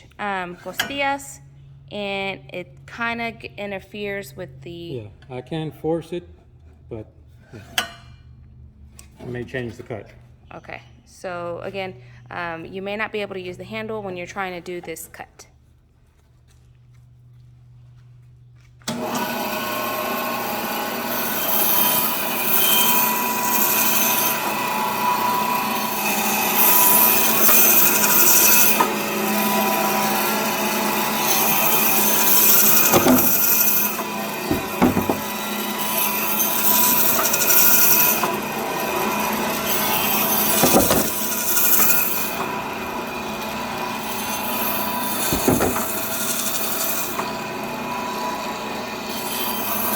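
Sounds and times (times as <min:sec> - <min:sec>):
electric band saw running: 0:18.9 - 0:49.9
saw cutting through bone: 0:19.0 - 0:49.9
sharp knocks: 0:32.6 - 0:35.4, 0:40.6 - 0:41.4, 0:45.3 - 0:46.0.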